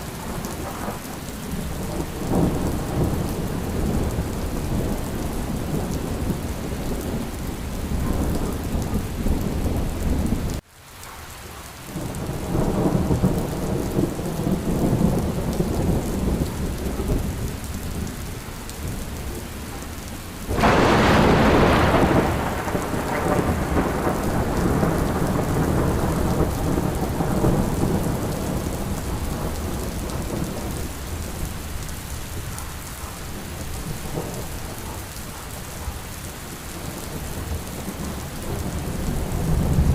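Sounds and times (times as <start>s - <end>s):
rolling thunder: 0.0s - 10.6s, 12.0s - 39.9s
steady rain: 0.0s - 39.9s
loud thunderclap: 20.5s - 30.9s.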